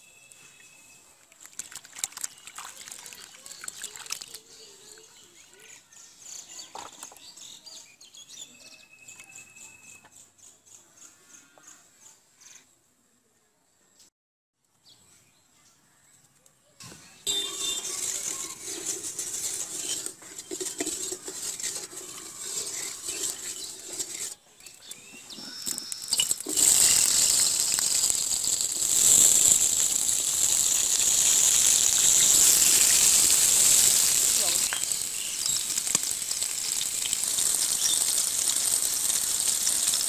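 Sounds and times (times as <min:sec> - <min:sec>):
hot oil crackling: 0:01.2 - 0:04.9, 0:17.3 - 0:40.0
potatoes sizzling in oil: 0:01.6 - 0:06.9, 0:17.3 - 0:40.0
wooden spatula stirring: 0:17.3 - 0:40.0.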